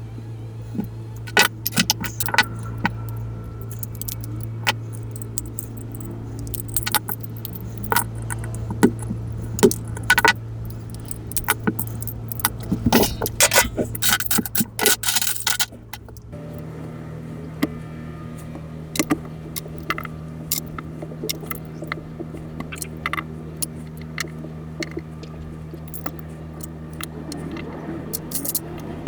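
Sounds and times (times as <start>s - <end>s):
small electric motor humming: 0.0s - 29.0s
plastic parts clicking: 0.8s - 16.3s, 19.0s - 22.0s.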